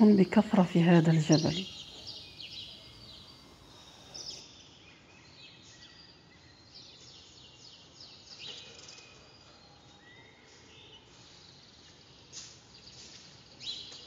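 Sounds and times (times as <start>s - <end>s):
small birds singing: 0.0s - 14.0s.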